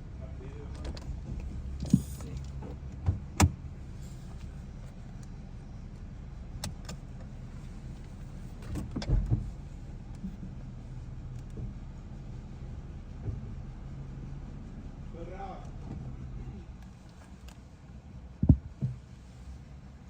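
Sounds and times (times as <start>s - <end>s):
car idling hum: 0.0s - 20.0s
thumps: 18.4s - 19.0s.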